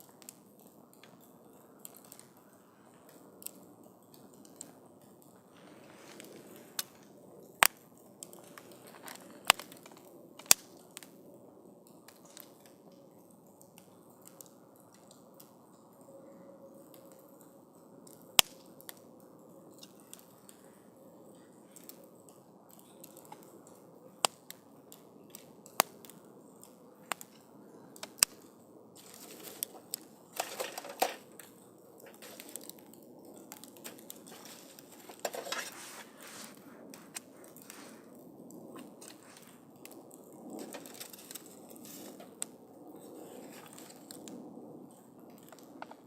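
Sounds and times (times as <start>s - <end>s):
wood campfire crackling and popping: 0.0s - 46.0s.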